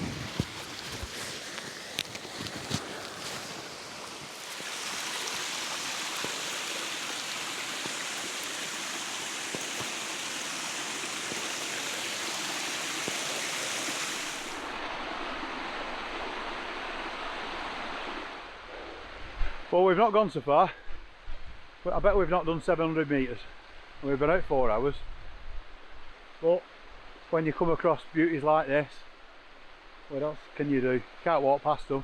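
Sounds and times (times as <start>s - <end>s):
water rushing over small waterfalls: 0.0s - 18.4s.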